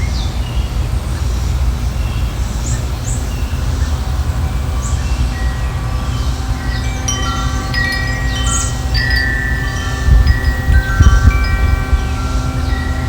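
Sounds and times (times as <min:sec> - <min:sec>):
small birds chirping: 0:01.9 - 0:13.0
wind rumble on microphone: 0:03.6 - 0:13.0.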